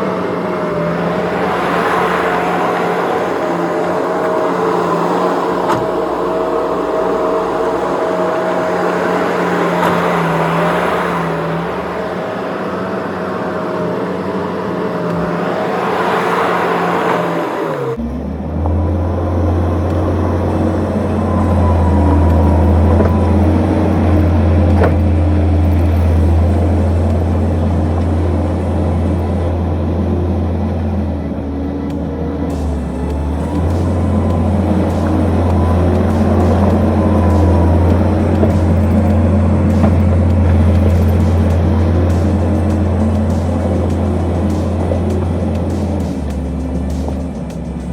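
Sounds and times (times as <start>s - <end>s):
skid steer engine running: 0.0s - 47.9s.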